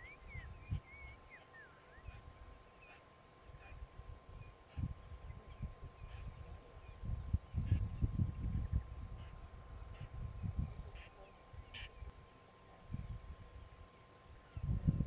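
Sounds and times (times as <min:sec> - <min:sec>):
birds whistling and chirping: 0:00.0 - 0:02.2
faint steady tone: 0:00.0 - 0:15.0.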